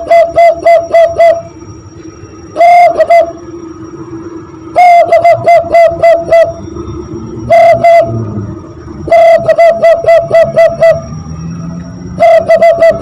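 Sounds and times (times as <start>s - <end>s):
hand-whistled dove call imitation: 0.0s - 1.6s, 2.5s - 3.4s, 4.8s - 6.6s, 7.4s - 8.2s, 9.0s - 11.1s, 12.2s - 13.0s.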